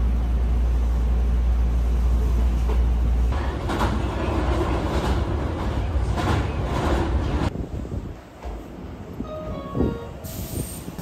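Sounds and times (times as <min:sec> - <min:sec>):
train rumbling on rails: 0:00.0 - 0:11.0
wheels clacking over rail joints: 0:02.6 - 0:07.5.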